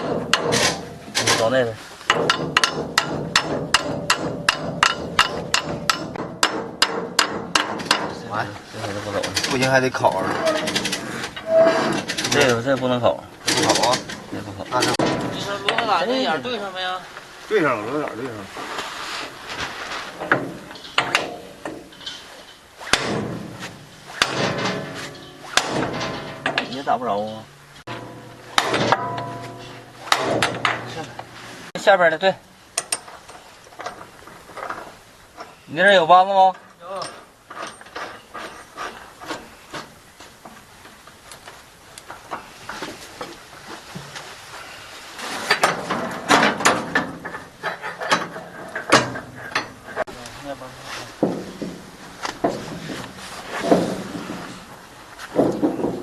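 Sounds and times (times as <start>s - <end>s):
hammer knocking on metal: 2.1s - 8.2s
hand tools knocking on metal: 2.1s - 8.2s, 23.0s - 31.4s.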